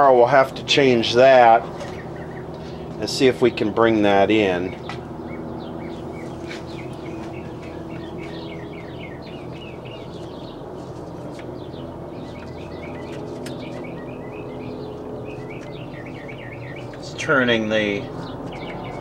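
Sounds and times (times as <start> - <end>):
birds chirping: 0.0 - 19.0
steady low hum: 0.0 - 19.0.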